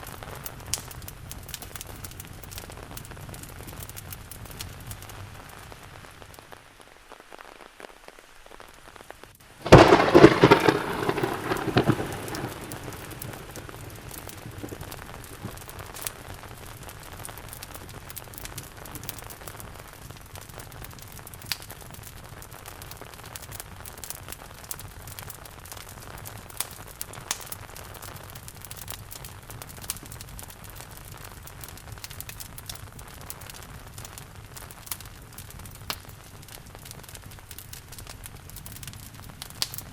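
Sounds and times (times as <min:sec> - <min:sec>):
steady rain: 0:00.0 - 0:39.9
wood fire crackling: 0:00.0 - 0:39.9
thunderclap rumbling: 0:09.6 - 0:16.1.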